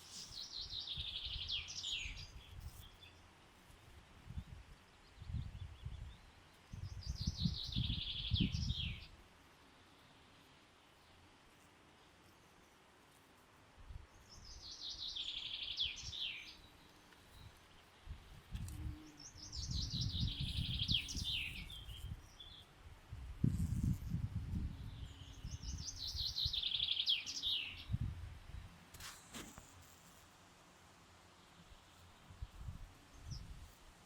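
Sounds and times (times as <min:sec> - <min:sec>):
songbird singing: 0:00.0 - 0:03.4, 0:04.2 - 0:09.2, 0:14.0 - 0:22.8, 0:23.5 - 0:29.1.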